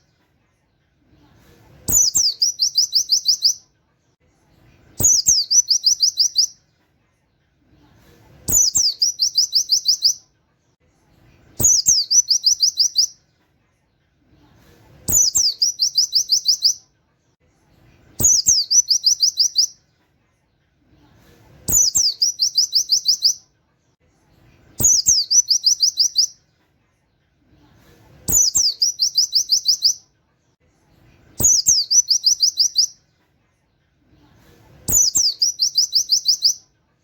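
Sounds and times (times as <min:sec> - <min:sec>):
bird singing high chirps: 0:01.9 - 0:03.7, 0:05.0 - 0:06.6, 0:08.5 - 0:10.2, 0:11.6 - 0:13.2, 0:15.1 - 0:16.8, 0:18.2 - 0:19.8, 0:21.7 - 0:23.4, 0:24.8 - 0:26.4, 0:28.3 - 0:30.0, 0:31.4 - 0:33.0, 0:34.9 - 0:36.7.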